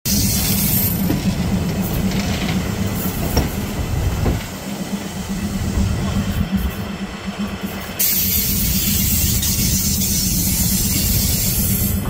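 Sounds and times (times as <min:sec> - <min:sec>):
train wheels clattering on rails: 0:00.1 - 0:12.0
high wheel squeal: 0:07.7 - 0:12.0.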